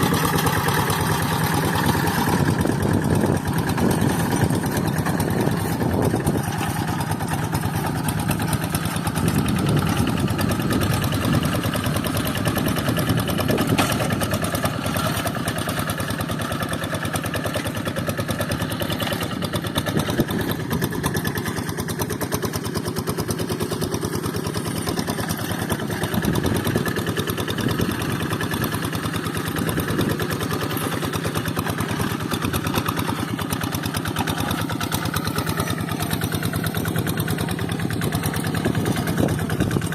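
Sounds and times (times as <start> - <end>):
hand tractor diesel engine running: 0.0 - 39.9.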